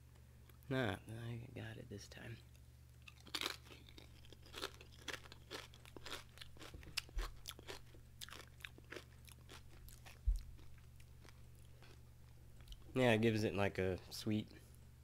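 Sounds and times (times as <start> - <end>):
chip crunching: 3.0 - 12.0.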